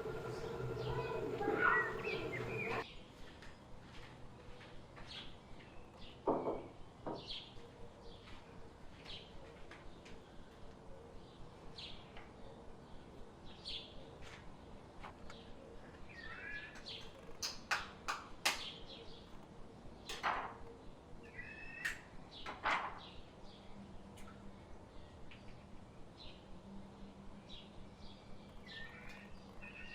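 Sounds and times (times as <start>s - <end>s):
small birds chirping: 0.0s - 4.0s, 7.2s - 29.9s
sharp clacks: 17.3s - 18.7s.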